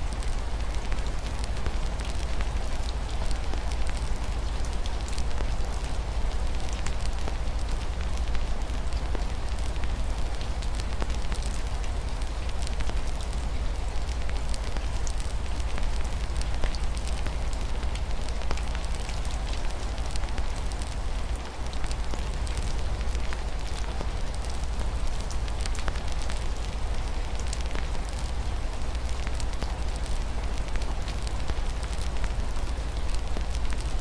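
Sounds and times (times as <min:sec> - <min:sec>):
rain hiss: 0:00.0 - 0:34.0
wood fire crackling and popping: 0:14.0 - 0:28.3.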